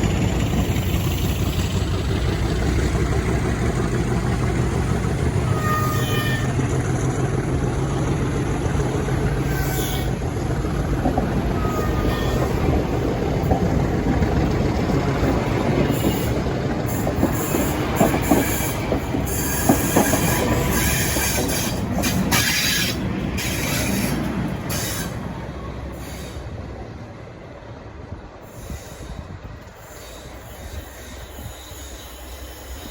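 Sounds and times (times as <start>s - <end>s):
train wheels knocking over rail joints: 0.0s - 25.2s
wheels squealing on rails: 0.0s - 26.8s, 28.3s - 32.9s
diesel train engine running: 0.0s - 32.9s.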